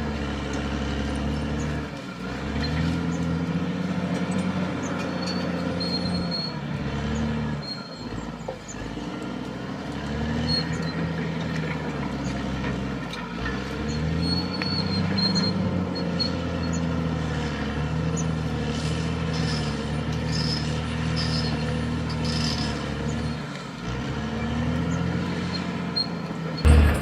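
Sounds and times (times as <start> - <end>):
bulldozer diesel engine running: 0.0 - 27.0
high-pitched squeaks: 26.0 - 27.0.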